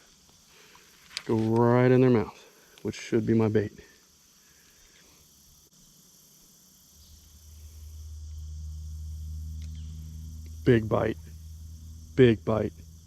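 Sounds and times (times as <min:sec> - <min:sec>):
crickets and insects trilling: 0:00.0 - 0:13.0
low steady hum: 0:06.5 - 0:13.0.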